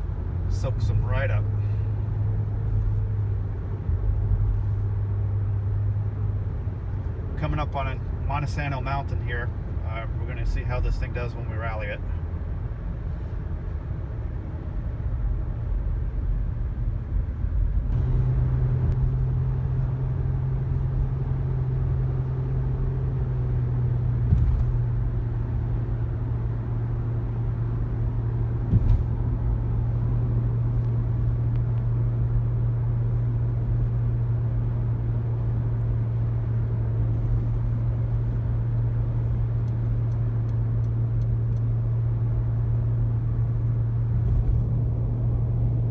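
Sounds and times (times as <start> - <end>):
minivan engine and road noise: 0.0 - 45.9
sharp thumps: 24.2 - 25.0, 28.6 - 29.4.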